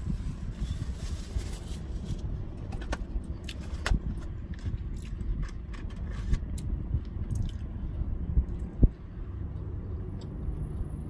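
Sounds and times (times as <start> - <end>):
low rumble inside a car: 0.0 - 11.0
person chewing food: 7.3 - 7.7.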